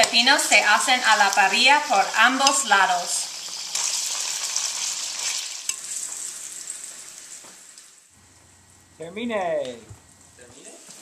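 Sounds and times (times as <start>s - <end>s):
slices frying in oil: 0.0s - 8.1s.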